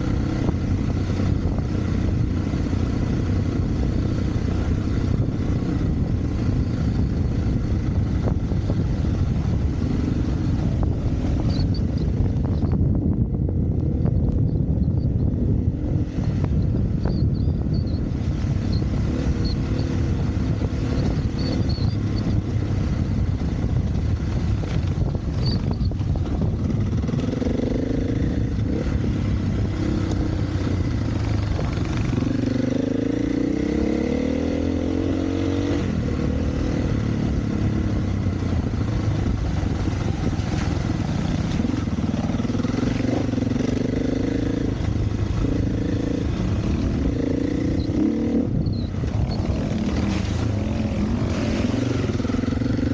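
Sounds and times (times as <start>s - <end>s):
dirt bike engine revving: 26.7s - 52.9s.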